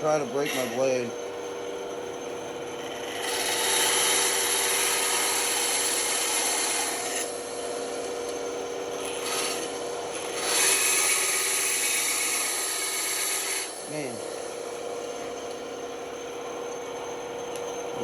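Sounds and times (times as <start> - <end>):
band saw cutting wood: 0.0 - 1.2, 2.8 - 7.9, 8.9 - 14.6.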